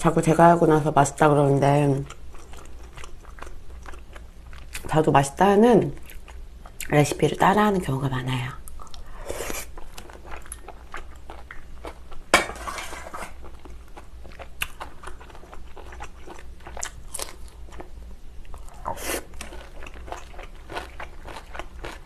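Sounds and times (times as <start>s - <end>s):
person chewing shellfish: 2.0s - 4.9s, 6.0s - 6.9s, 8.6s - 12.3s, 13.2s - 22.0s.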